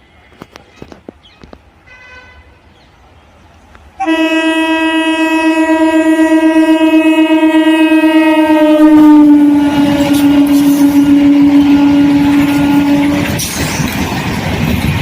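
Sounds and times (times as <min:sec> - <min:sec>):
passing train rumble and clatter: 0:00.0 - 0:15.0
train horn long note: 0:04.0 - 0:13.5.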